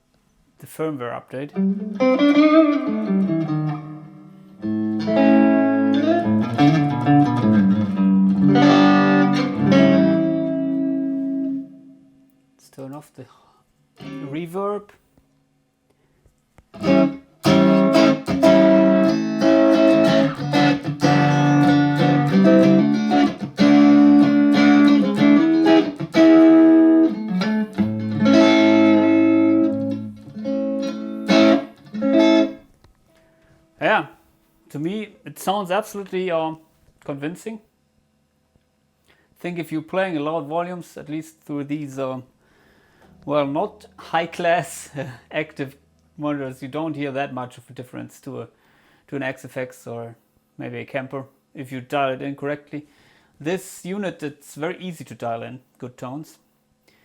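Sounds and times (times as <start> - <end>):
electric guitar chords ringing: 1.5 - 12.3, 14.0 - 14.5, 16.8 - 33.5.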